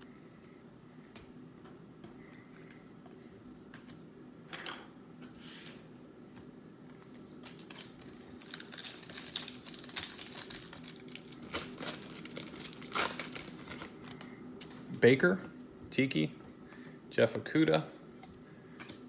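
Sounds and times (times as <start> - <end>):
card pack wrapper tearing and crinkling: 7.4 - 14.2.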